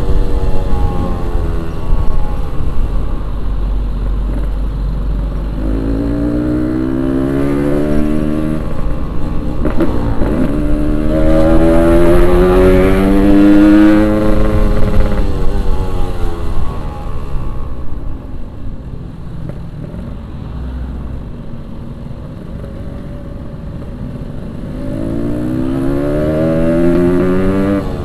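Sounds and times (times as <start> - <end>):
motorcycle engine accelerating: 0.0 - 17.3, 24.7 - 28.0.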